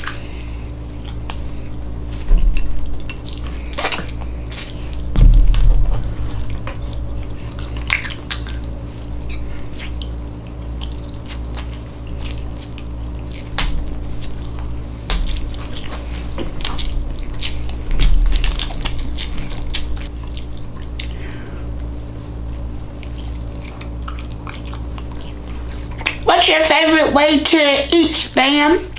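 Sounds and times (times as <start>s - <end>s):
steady low hum: 0.0s - 28.9s
person chewing: 2.9s - 5.2s, 7.6s - 26.2s
low thumps: 4.8s - 9.6s.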